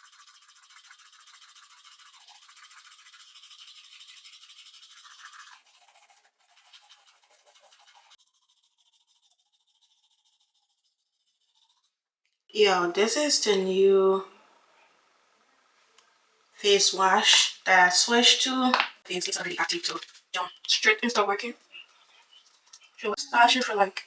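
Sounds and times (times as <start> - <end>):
hissy brushing strokes: 19.4 - 20.4.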